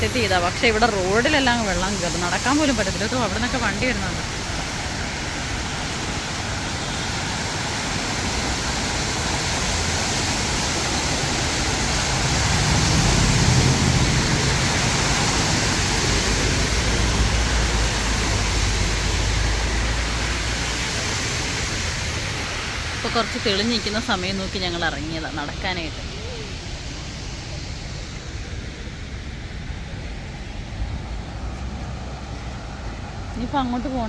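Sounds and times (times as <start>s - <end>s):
vehicle engine rumble: 0.0s - 34.0s
water rushing on flooded road: 0.0s - 34.0s.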